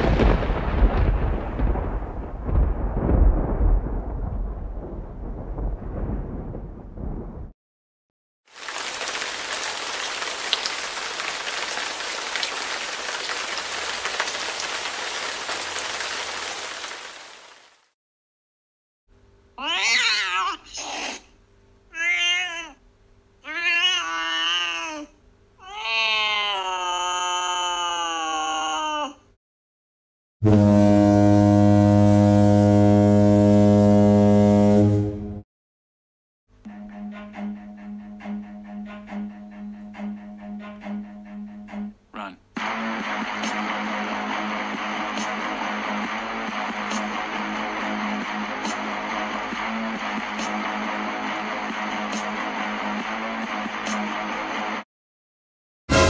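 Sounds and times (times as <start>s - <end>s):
low rumble: 0.0s - 7.5s
steady rain: 8.5s - 17.9s
deep horn blast: 30.4s - 35.4s.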